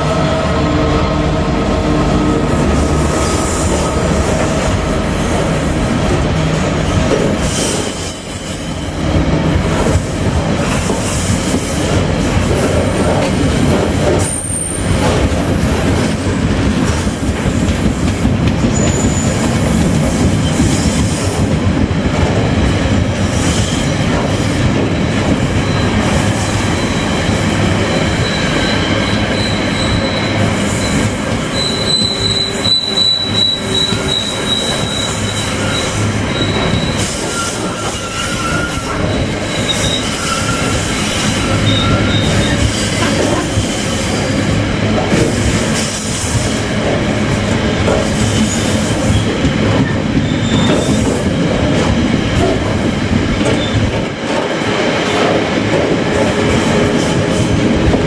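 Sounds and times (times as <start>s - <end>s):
freight train wheels rattling: 1.4s - 58.0s
high wheel squeal: 27.9s - 44.2s.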